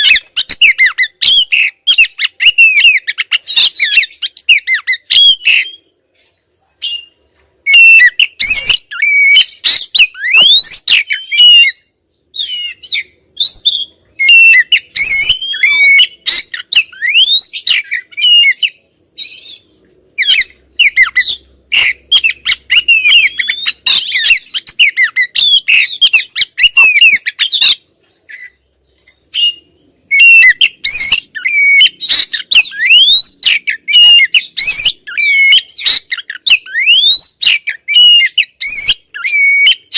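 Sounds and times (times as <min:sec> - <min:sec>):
bird whistling and chirping: 0:00.0 - 0:05.9, 0:06.8 - 0:28.6, 0:29.3 - 0:39.9.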